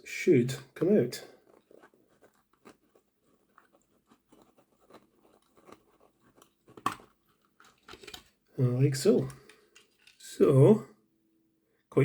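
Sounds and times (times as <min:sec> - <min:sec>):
small plastic clicks and creaks: 0:06.4 - 0:08.4, 0:09.2 - 0:10.2.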